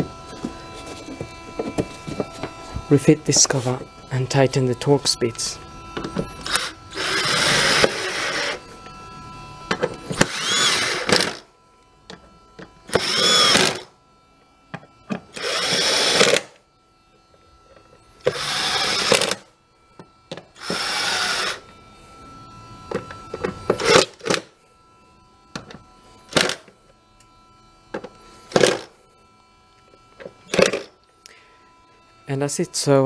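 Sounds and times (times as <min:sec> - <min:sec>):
cordless drill bursts: 0:06.4 - 0:08.6, 0:10.1 - 0:11.5, 0:12.9 - 0:13.9, 0:15.3 - 0:16.6, 0:18.2 - 0:19.5, 0:20.6 - 0:21.7, 0:23.8 - 0:24.4, 0:28.5 - 0:28.9, 0:30.5 - 0:30.9.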